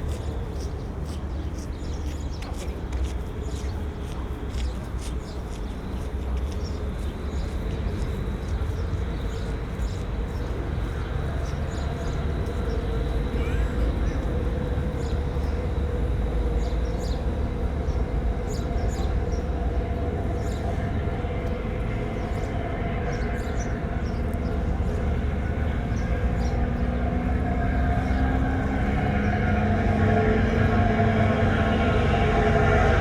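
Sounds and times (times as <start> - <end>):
heavy engine rumbling: 7.7 - 33.0.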